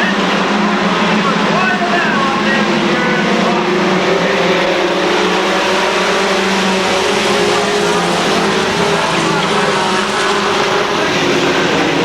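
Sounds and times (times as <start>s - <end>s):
race truck engines: 0.0s - 12.0s.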